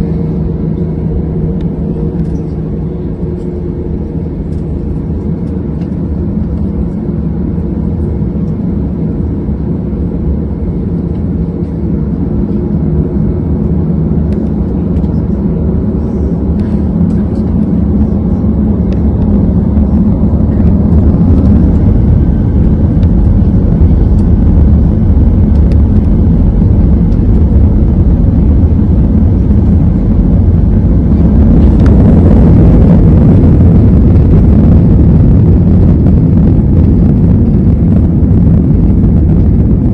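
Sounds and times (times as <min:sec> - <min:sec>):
broad rush of noise: 0:00.0 - 0:09.4, 0:10.8 - 0:39.9
jet engines rumbling: 0:00.0 - 0:39.9.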